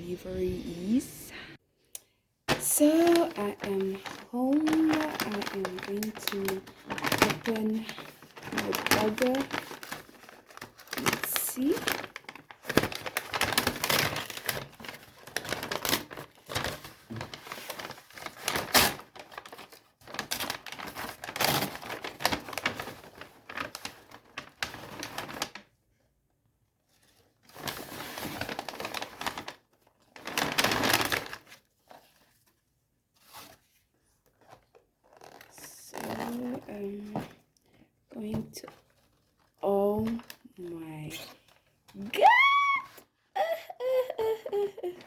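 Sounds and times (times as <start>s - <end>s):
paper packaging crinkling and tearing: 2.5s - 25.7s, 27.0s - 32.6s, 33.2s - 37.3s.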